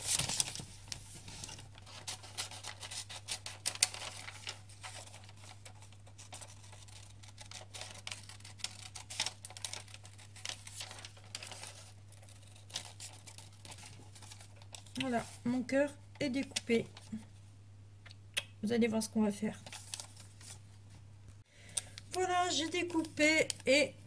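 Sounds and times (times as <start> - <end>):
paper rustling: 0.0 - 15.5, 19.6 - 20.8.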